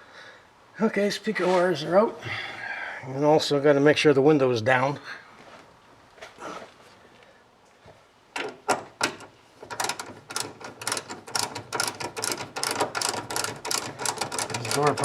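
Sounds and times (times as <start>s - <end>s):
rhythmic mechanical clatter: 8.4s - 15.0s.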